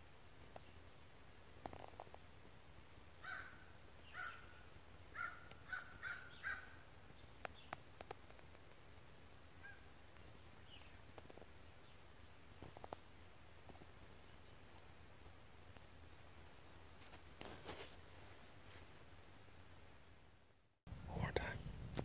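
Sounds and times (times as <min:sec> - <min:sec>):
faint bird calls: 0:03.2 - 0:08.2, 0:09.5 - 0:14.9
sharp clicks: 0:07.4 - 0:08.8.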